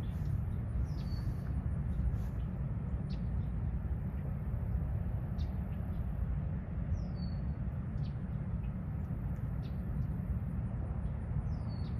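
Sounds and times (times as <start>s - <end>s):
faint bird calls: 0.0s - 3.6s
low steady rumble: 0.0s - 11.9s.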